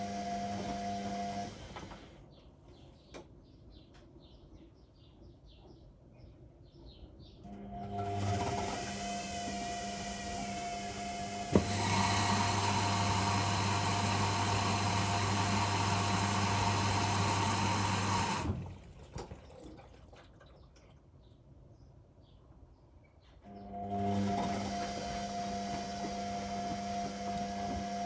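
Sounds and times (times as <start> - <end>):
washing machine motor hum: 0.0 - 2.0, 7.5 - 20.1, 23.5 - 28.0
water rushing through machine: 8.1 - 20.2, 24.0 - 28.0
washing machine click: 11.4 - 12.2.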